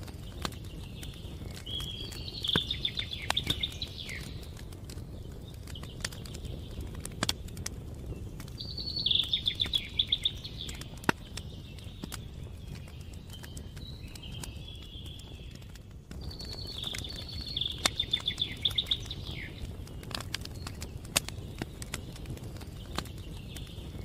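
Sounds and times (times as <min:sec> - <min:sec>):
campfire crackling and popping: 0:00.0 - 0:24.0
songbird trilling: 0:01.6 - 0:04.4, 0:08.6 - 0:11.0, 0:16.4 - 0:19.7.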